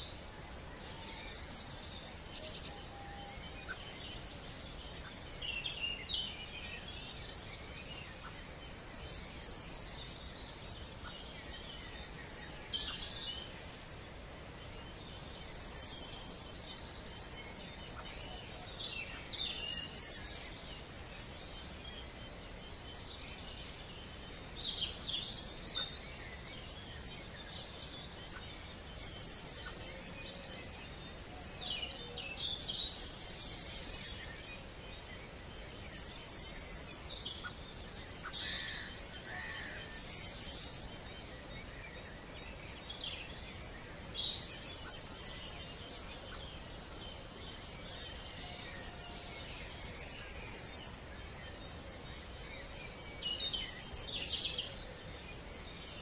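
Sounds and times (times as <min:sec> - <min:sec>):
songbird song with trill: 0:00.0 - 0:56.0
faint bird calls: 0:35.4 - 0:56.0.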